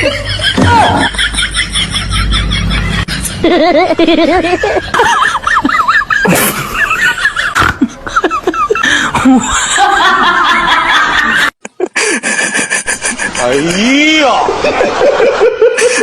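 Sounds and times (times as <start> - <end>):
high-pitched giggling laughter: 0.0 - 13.4.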